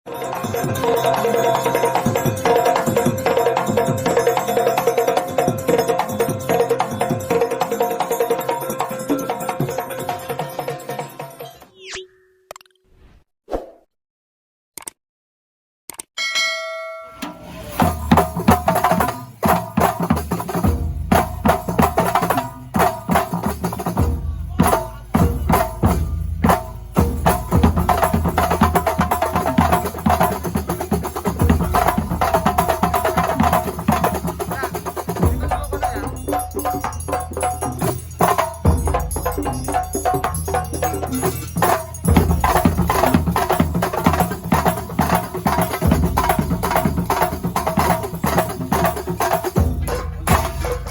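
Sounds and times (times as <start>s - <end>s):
frame drums and hand percussion: 0.1s - 11.8s, 16.2s - 50.9s
pitched tones: 9.0s - 12.9s.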